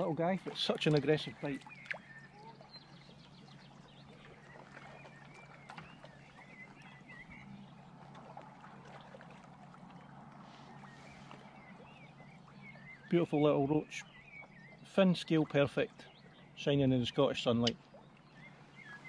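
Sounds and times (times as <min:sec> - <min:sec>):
low steady hum: 0:00.0 - 0:19.0
bird chirps: 0:01.2 - 0:07.9, 0:10.6 - 0:19.0.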